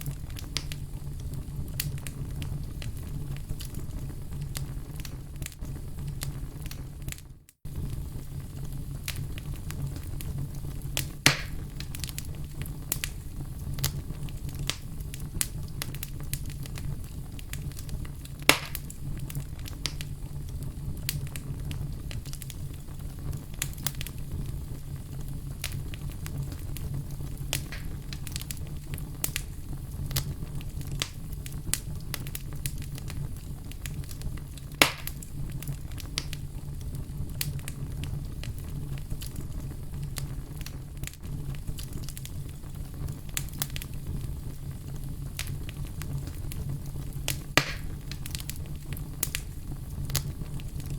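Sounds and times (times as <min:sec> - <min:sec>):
loud fire pops: 0:00.0 - 0:50.9
wood fire crackling: 0:00.0 - 0:50.9.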